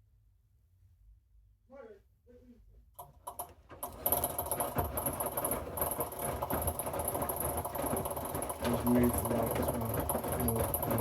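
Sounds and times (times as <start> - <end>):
washing machine running: 3.0 - 11.0.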